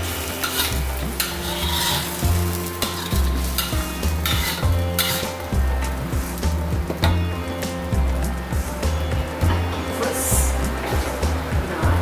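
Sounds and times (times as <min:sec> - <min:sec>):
spatula scraping a wok: 0:00.0 - 0:06.4
spice paste sizzling: 0:00.0 - 0:12.0.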